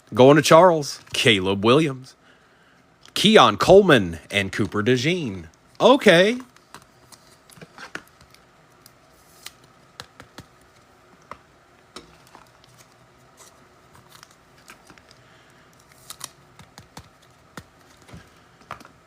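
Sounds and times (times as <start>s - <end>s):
trading cards clicking and flicking: 6.3s - 11.4s, 15.8s - 19.0s.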